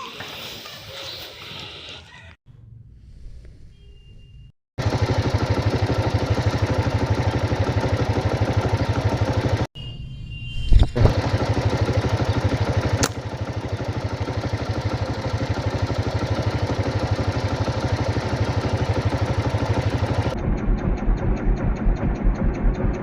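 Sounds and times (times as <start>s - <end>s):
small engine running: 4.8s - 9.7s, 11.0s - 23.0s
sharp click: 13.0s - 13.2s.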